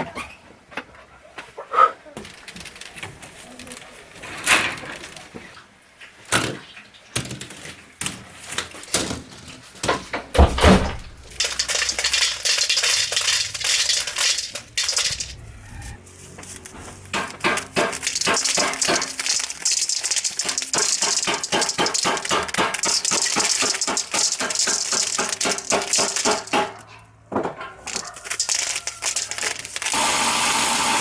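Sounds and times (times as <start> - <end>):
corn kernels rattling in metal container: 11.0 - 26.9, 27.8 - 31.0.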